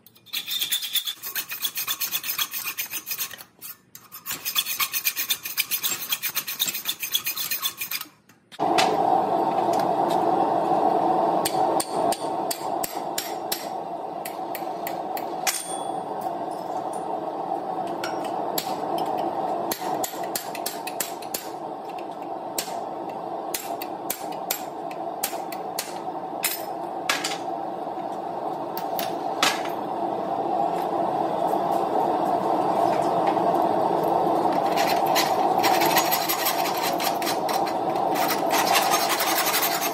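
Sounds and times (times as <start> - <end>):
filing on metal: 0.1 - 8.2, 34.8 - 39.9
steady whir: 8.6 - 39.9.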